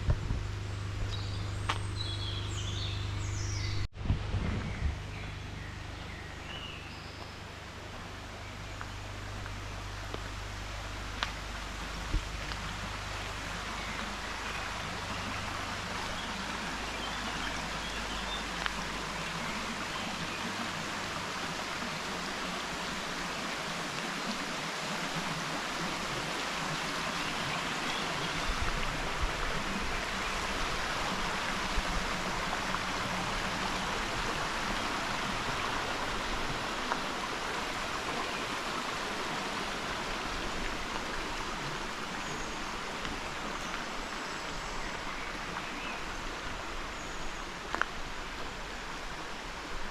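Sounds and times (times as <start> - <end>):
stream water rushing: 4.7 - 49.9
faint ticks: 11.1 - 11.4, 47.7 - 48.0.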